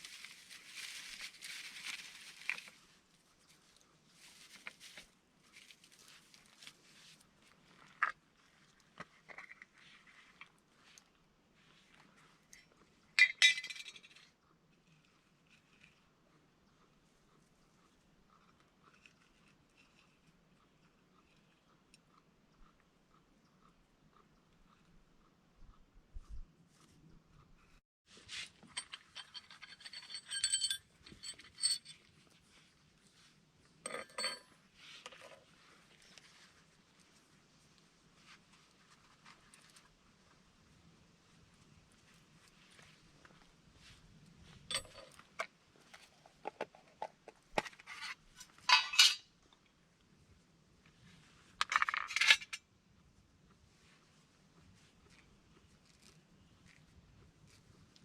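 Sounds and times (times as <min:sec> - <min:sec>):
metal pots clinking and rattling: 0:28.6 - 0:32.0, 0:33.8 - 0:34.5, 0:44.7 - 0:45.3, 0:46.4 - 0:49.3, 0:51.6 - 0:52.6
metal cookware clinking and scraping: 0:33.9 - 0:34.5, 0:47.9 - 0:49.3.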